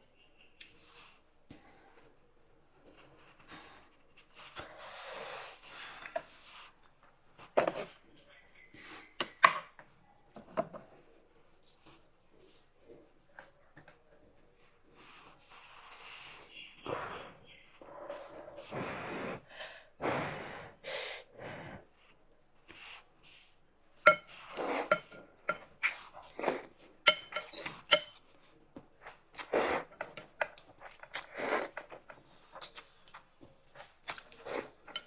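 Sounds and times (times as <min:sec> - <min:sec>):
utensils clinking against bowl: 0:24.0 - 0:28.5, 0:33.7 - 0:35.0
noodle soup slurping: 0:24.1 - 0:28.1, 0:29.4 - 0:33.4, 0:34.0 - 0:35.0.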